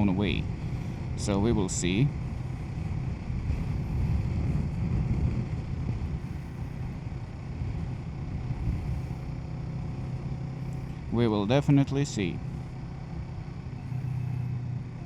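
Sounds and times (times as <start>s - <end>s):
motorcycle engine droning: 0.0s - 15.0s
wind rush: 0.3s - 10.2s.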